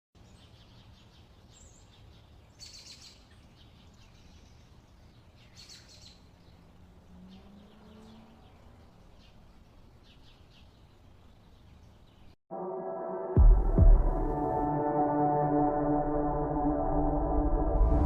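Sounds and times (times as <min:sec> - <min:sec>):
birds chirping: 0:00.2 - 0:12.4.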